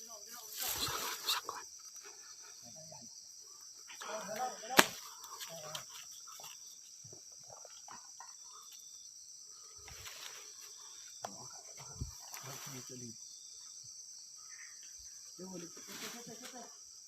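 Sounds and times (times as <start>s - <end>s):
night insects chirring: 0.0s - 17.0s
sharp crack: 4.6s - 5.4s.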